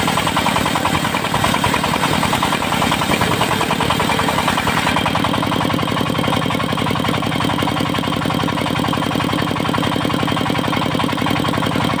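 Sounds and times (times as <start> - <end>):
saw mill engine running: 0.0 - 12.0.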